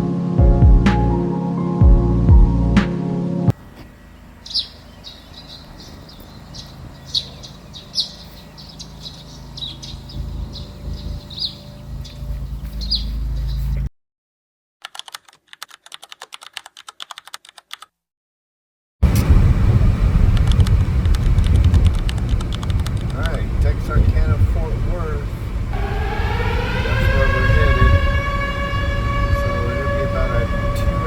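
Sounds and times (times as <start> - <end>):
fast sharp clicks: 14.8 - 17.9, 20.3 - 23.5
low rumble: 19.0 - 31.0.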